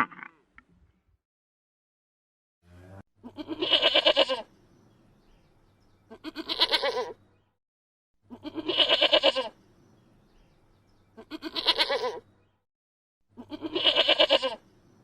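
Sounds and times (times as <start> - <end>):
goat bleating: 2.7 - 4.5, 6.1 - 7.2, 8.3 - 9.6, 11.2 - 12.3, 13.4 - 14.6.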